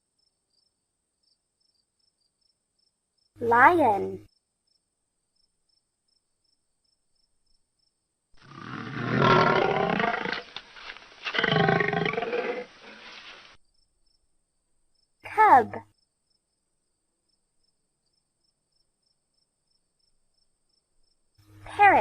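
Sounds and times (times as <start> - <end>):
lion roaring: 8.4 - 13.2.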